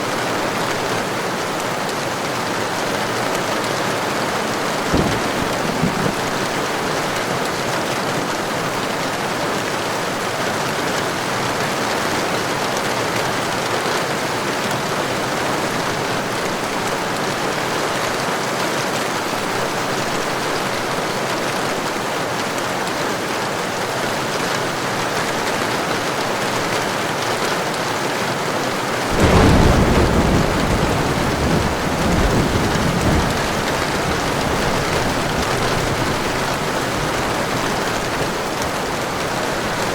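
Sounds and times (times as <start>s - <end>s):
heavy rain: 0.0s - 39.9s
thunder rumbling: 4.7s - 7.4s, 29.1s - 39.9s.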